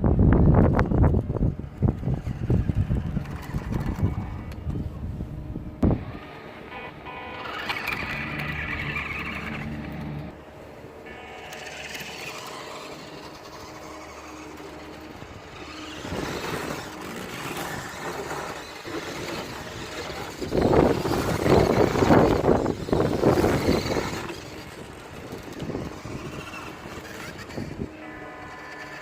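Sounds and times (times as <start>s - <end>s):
small electric motor whining: 0.6s - 29.0s
loud rough rushing noise: 5.4s - 27.9s.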